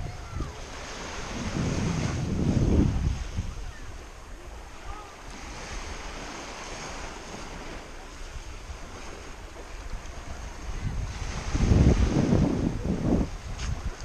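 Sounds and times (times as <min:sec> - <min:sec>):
waves washing on shore: 0:00.0 - 0:14.0
wind rumbling on microphone: 0:00.0 - 0:14.0.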